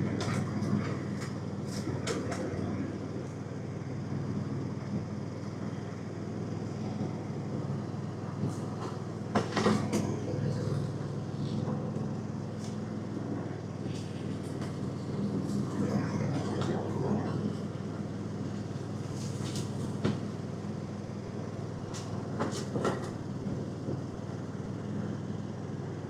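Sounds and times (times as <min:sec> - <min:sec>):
small engine running: 0:00.0 - 0:26.0.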